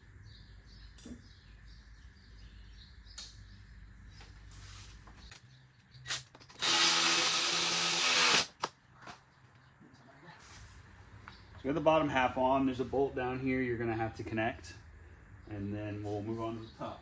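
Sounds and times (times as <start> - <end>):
cordless power tool running: 6.6 - 8.6.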